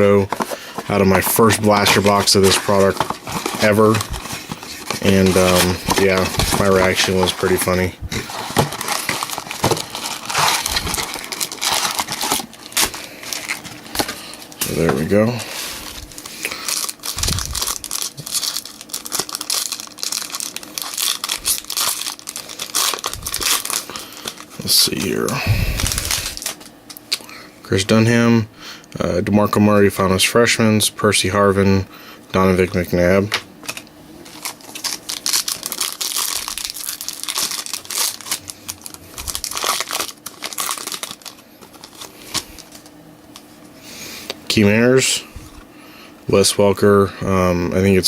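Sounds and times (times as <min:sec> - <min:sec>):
plastic wrapping crinkling and tearing: 0:00.0 - 0:27.1, 0:33.6 - 0:43.4.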